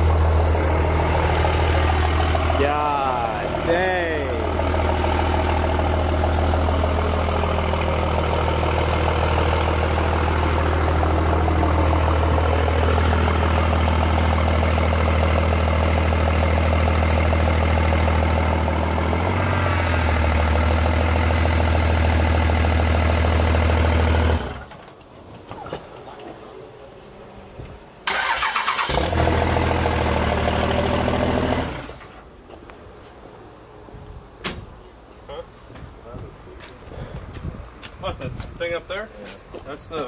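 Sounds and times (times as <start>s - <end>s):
diesel engine idling with deep rumble: 0.0s - 24.7s.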